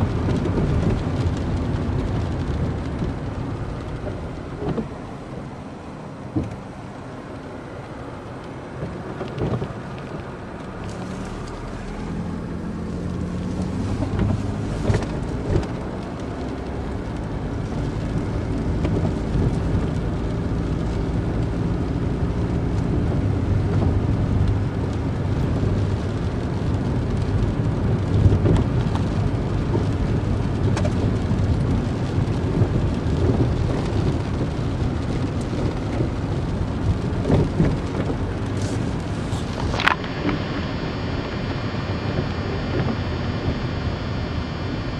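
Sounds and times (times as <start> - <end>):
car engine hum: 0.0 - 44.9
rumbling road noise: 0.0 - 44.9.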